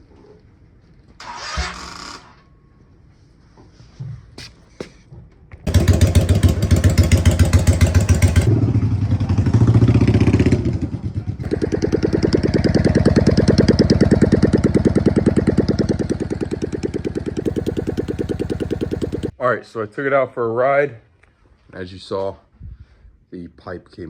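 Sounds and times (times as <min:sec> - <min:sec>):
motorcycle engine revving: 0:01.2 - 0:02.4, 0:05.7 - 0:19.3.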